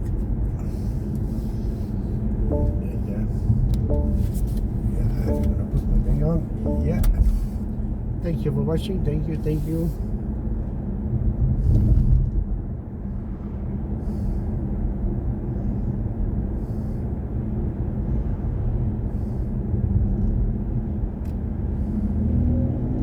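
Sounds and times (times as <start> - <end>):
road and tyre rumble in car: 0.0 - 23.0
faint hum: 0.6 - 8.0.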